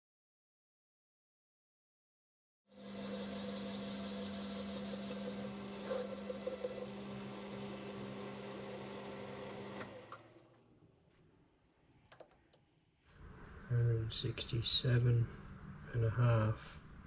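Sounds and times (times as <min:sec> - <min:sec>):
metal lathe humming: 0:02.8 - 0:10.0.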